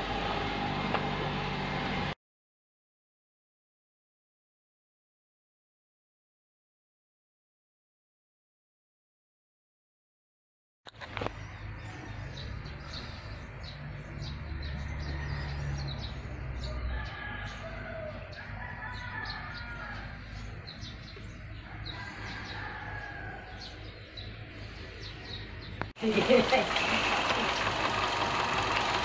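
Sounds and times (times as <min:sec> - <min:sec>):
birds chirping: 0:10.9 - 0:29.0
car engine idling: 0:26.0 - 0:29.0.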